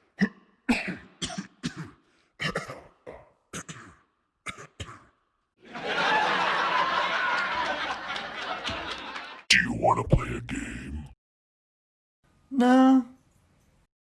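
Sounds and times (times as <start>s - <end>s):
person coughing: 0.2s - 5.2s.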